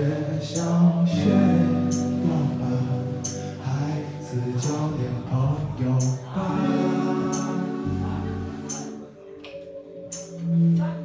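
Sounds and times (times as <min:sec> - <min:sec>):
live band playing pop-rock: 0:05.9 - 0:09.1.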